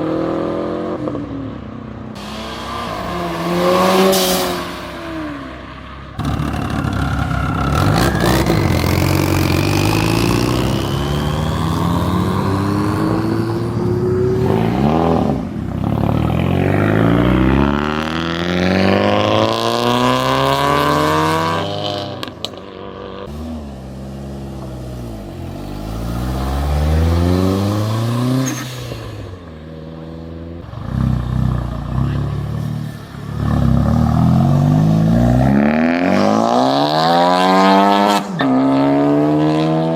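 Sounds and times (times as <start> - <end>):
cars accelerating with gear changes: 6.2 - 39.9.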